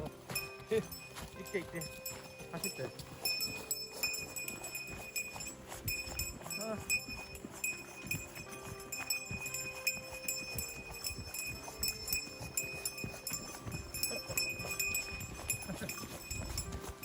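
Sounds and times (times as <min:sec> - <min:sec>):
footsteps on forest floor: 0:00.0 - 0:17.0
steady high ringing note: 0:00.3 - 0:17.0.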